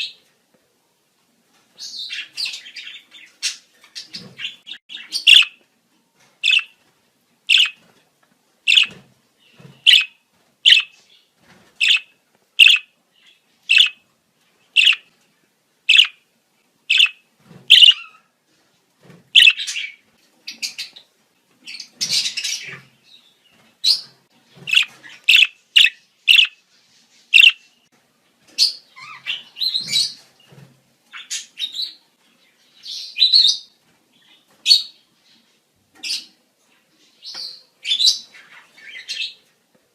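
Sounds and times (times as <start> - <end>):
budgerigars chirping and warbling: 1.8 - 5.6, 6.4 - 6.8, 7.5 - 7.8, 8.7 - 11.1, 11.8 - 14.0, 14.7 - 15.1, 15.9 - 16.2, 16.9 - 18.3, 19.4 - 21.1, 21.7 - 23.0, 23.8 - 27.7, 28.6 - 30.3, 37.3 - 39.4.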